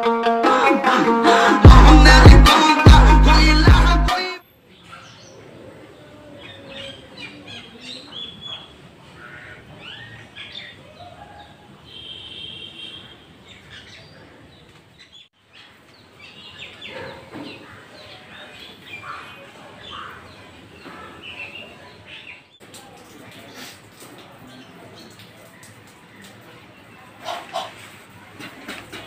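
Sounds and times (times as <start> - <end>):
faint outdoor background: 0.0 - 29.0
songbirds chirping: 4.2 - 29.0.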